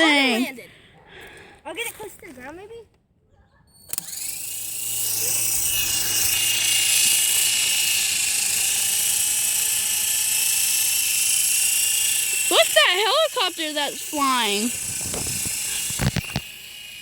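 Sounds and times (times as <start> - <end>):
toy helicopter motor click: 3.8 - 17.0
toy helicopter motor whine: 3.9 - 17.0.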